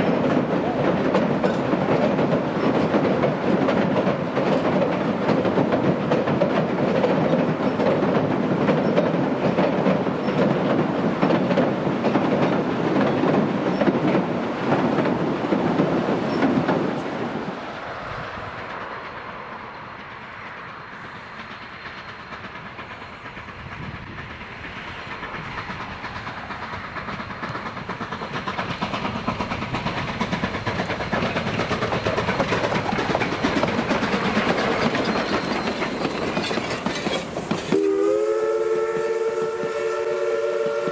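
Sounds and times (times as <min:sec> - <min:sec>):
steam train wheels clacking: 0:00.0 - 0:40.9.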